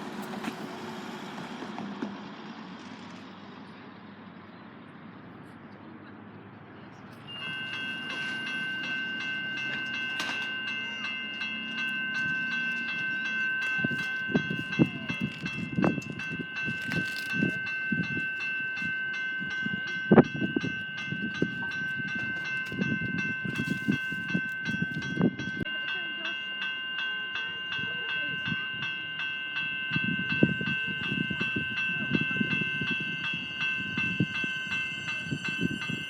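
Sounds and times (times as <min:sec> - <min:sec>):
level crossing bell ringing: 0:07.3 - 0:36.0.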